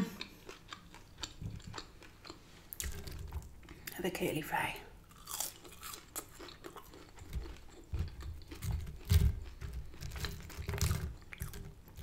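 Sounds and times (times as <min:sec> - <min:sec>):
low chewing thuds: 0:05.1 - 0:12.0.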